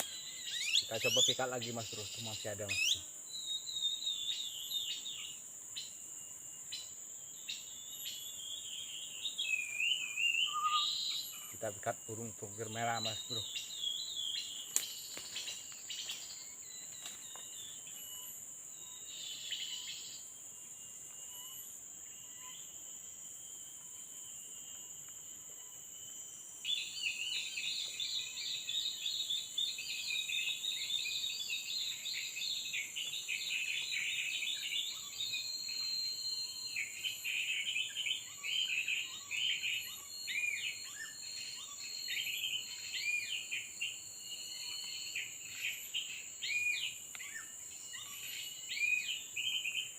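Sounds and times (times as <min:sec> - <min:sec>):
rapid bird chirps and calls: 0:00.0 - 0:06.0, 0:06.6 - 0:22.7, 0:26.6 - 0:49.9
high-pitched insect drone: 0:00.0 - 0:49.9.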